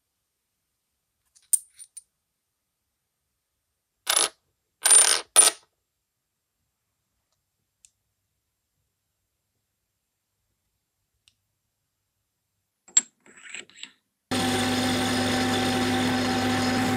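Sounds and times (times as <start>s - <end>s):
small metal parts clinking: 1.3s - 2.0s.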